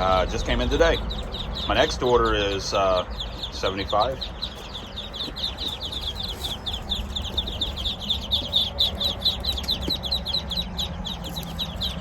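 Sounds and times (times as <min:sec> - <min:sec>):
ducklings peeping: 0:00.0 - 0:12.0.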